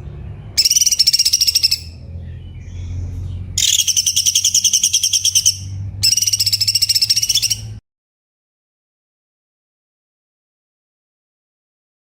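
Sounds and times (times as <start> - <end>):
bird song fast high notes: 0.6 - 2.0, 3.6 - 7.8.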